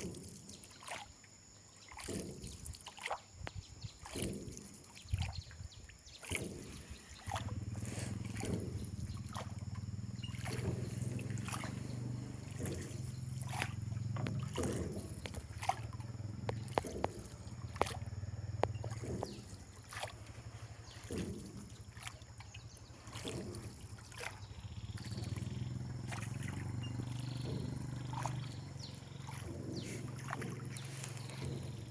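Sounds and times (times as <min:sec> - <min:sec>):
water trickling and splashing: 0:00.0 - 0:31.9
steady low hum: 0:06.1 - 0:31.9.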